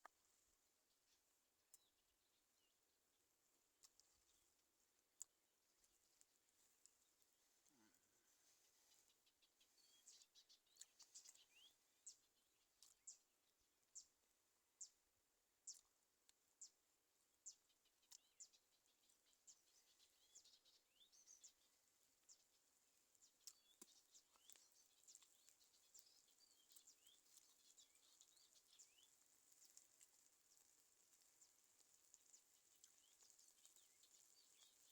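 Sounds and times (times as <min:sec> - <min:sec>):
birds chirping: 0:08.8 - 0:13.2, 0:17.4 - 0:22.6, 0:23.2 - 0:31.5, 0:32.2 - 0:34.9
bird chirping: 0:08.9 - 0:13.2, 0:17.4 - 0:22.6, 0:23.2 - 0:30.6, 0:32.2 - 0:34.9.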